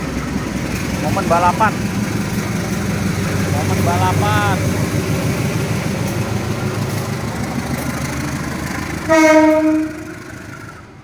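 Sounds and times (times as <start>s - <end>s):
train rumbling past: 0.0s - 11.0s
train horn blast: 9.0s - 10.5s.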